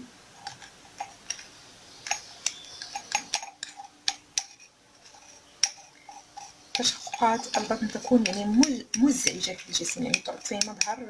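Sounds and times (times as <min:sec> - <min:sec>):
teaspoon clinking against glass jar: 0:02.0 - 0:04.7, 0:05.6 - 0:11.0.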